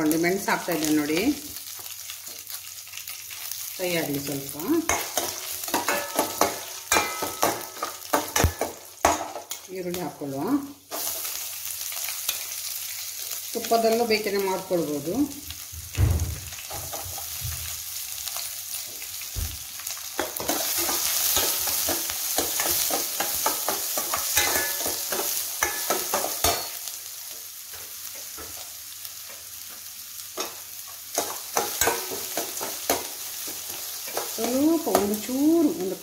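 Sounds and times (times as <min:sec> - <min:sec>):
food sizzling in hot oil: 0:00.0 - 0:36.0
spoon scraping and knocking on pan: 0:04.8 - 0:09.6, 0:20.2 - 0:26.9, 0:27.7 - 0:35.2.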